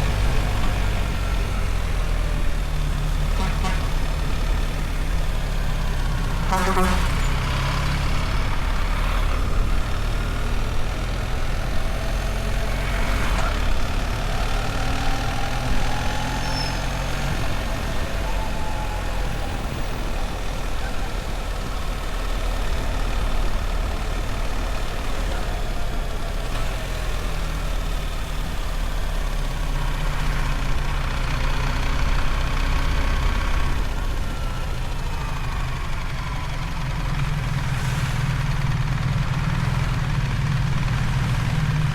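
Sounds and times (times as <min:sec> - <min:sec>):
motorcycle engine running at low revs: 0:38.3 - 0:41.9.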